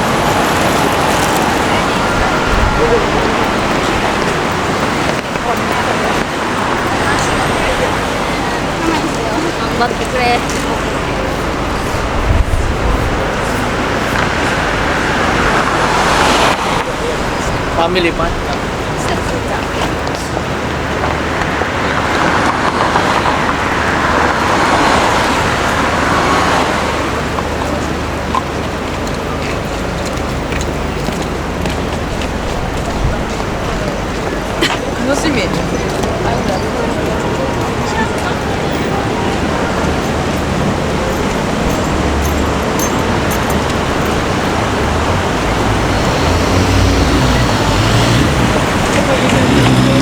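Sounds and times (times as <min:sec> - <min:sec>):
vehicle passing close by: 0:00.0 - 0:19.1, 0:37.0 - 0:50.0
city traffic: 0:00.0 - 0:50.0
low engine rumble: 0:26.9 - 0:50.0.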